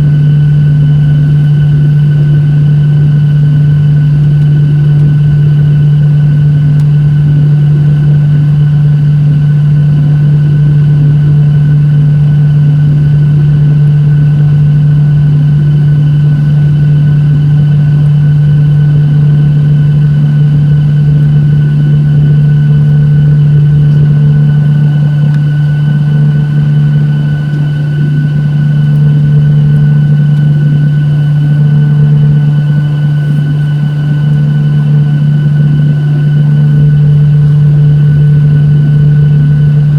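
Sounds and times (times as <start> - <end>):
jet engine deep drone: 0.0 - 39.9
faint high whine: 13.2 - 39.9.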